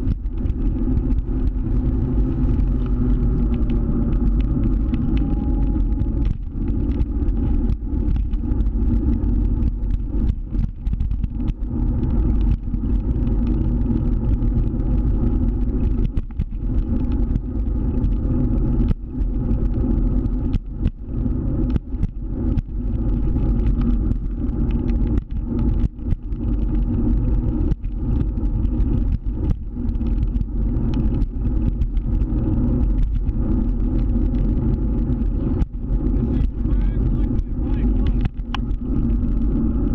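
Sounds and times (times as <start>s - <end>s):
scooter running on road: 0.0s - 39.9s.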